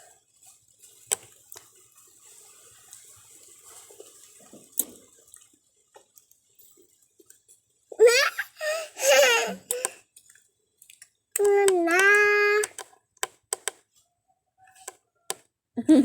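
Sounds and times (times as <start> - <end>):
wet eating sounds: 0.8 - 7.4
sharp clicks: 11.4 - 13.8.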